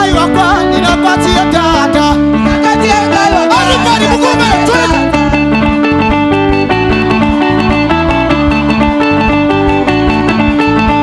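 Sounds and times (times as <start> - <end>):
person singing: 0.0 - 5.4
live praise band playing: 0.0 - 11.0.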